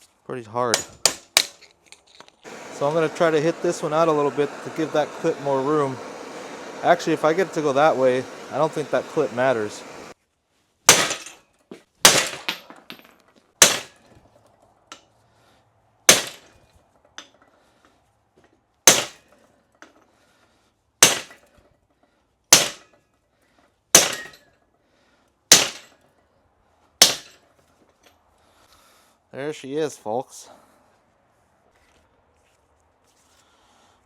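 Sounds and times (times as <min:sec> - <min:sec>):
hammer striking metal: 0:24.0 - 0:24.4.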